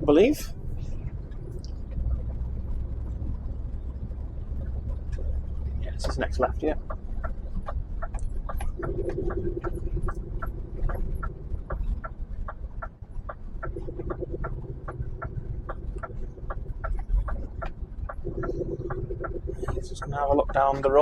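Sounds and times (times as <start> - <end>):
truck engine idling: 0.0 - 21.0
turn signal ticking: 0.0 - 21.0
steady hum: 8.6 - 21.0.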